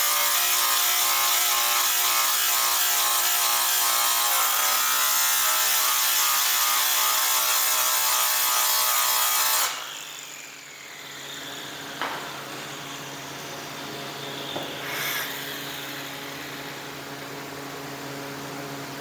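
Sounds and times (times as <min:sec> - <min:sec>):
power tool grinding metal pipe: 0:00.0 - 0:18.1
steady hum: 0:11.8 - 0:19.0.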